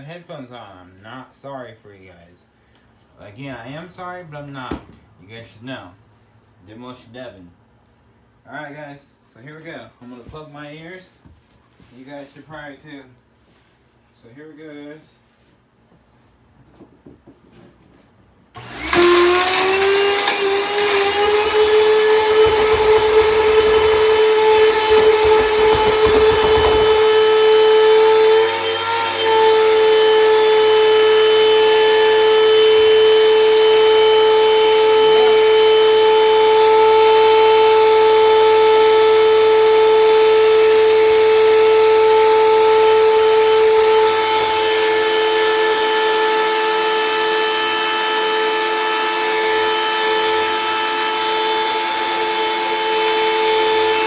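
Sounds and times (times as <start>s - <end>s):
debris rattling through vacuum: 18.6s - 30.2s, 42.2s - 45.8s, 51.7s - 54.0s
vacuum cleaner motor whine: 18.6s - 54.0s.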